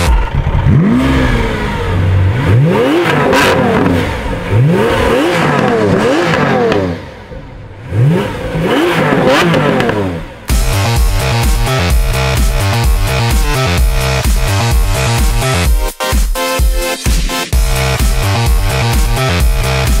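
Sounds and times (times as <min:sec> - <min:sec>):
car engines revving: 0:00.0 - 0:15.6.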